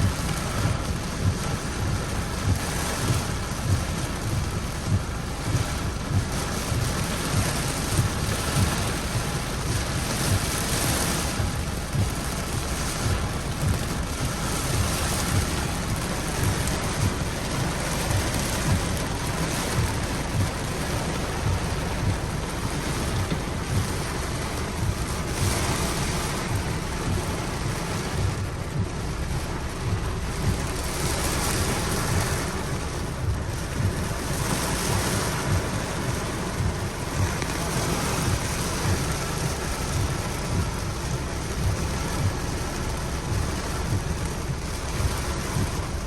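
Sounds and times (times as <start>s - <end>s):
low rumble: 0.0s - 46.0s
steady rain: 0.0s - 46.0s.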